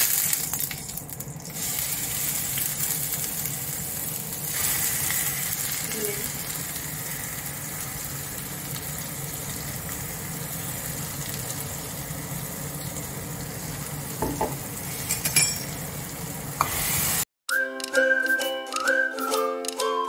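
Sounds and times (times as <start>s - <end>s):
paste sizzling in hot oil: 1.4s - 17.3s
knocks against pan: 14.2s - 14.6s
music: 17.5s - 20.0s.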